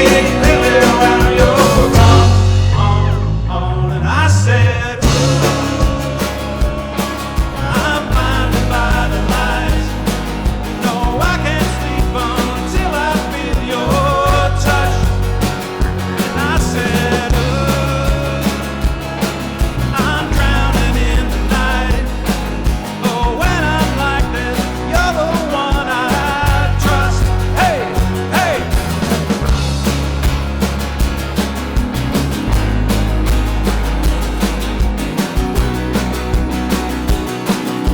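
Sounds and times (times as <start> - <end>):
drum beat: 0.0 - 3.0, 5.0 - 37.9
lead vocal singing: 0.0 - 29.8
bass: 0.0 - 37.9
live rock band: 0.0 - 37.9.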